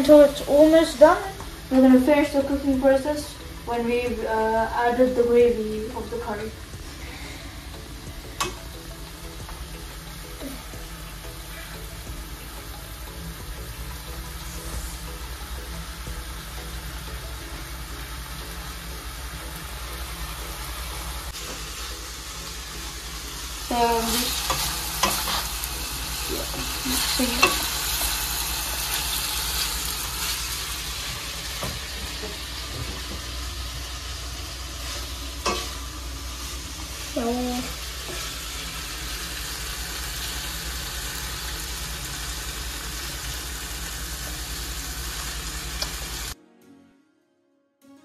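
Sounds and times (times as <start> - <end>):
chicken sizzling in oil: 0.0 - 46.4.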